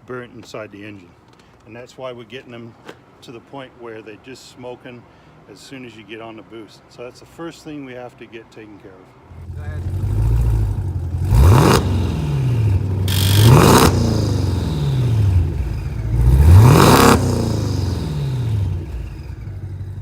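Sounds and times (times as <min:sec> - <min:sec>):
car engine idling and revving: 0:09.3 - 0:20.0.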